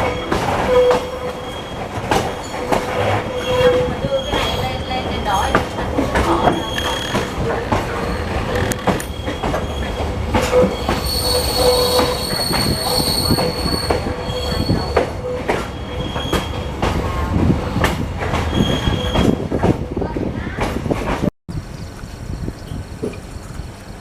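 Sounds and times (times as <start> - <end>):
high wheel squeal: 0.0 - 7.4, 8.0 - 16.9, 18.5 - 19.4
train rumbling on rails: 0.0 - 24.0.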